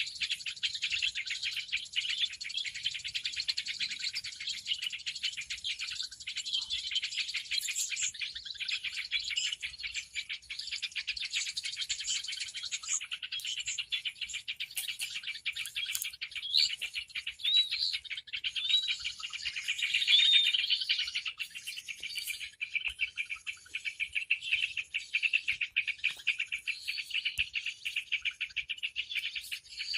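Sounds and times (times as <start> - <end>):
small birds chirping and twittering: 0.0 - 29.9
rising whistled bird notes: 10.3 - 29.9.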